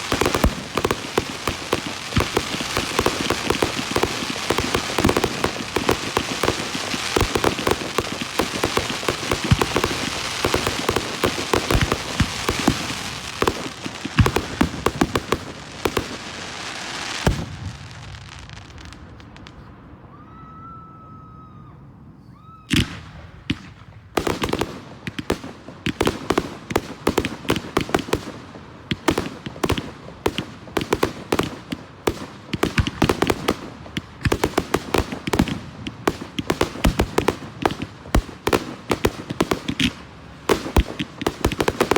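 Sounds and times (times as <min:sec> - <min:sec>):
fireworks crackling: 0:00.0 - 0:20.0, 0:22.8 - 0:41.9
faint firework whistle: 0:19.5 - 0:23.1.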